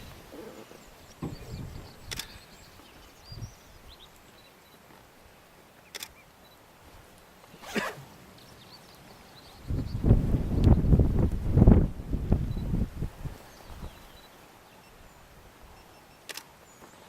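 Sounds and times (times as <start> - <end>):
camera shutter clicks: 5.9 - 6.2, 16.2 - 16.5.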